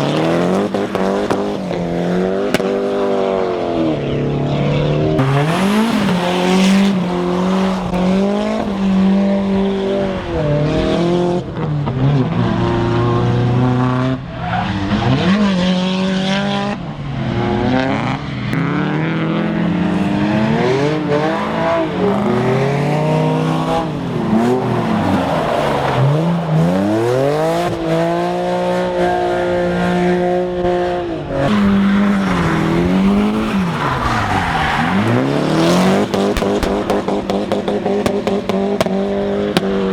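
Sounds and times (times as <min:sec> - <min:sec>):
tyre noise: 0:00.0 - 0:03.1
car engines revving hard: 0:00.0 - 0:39.9.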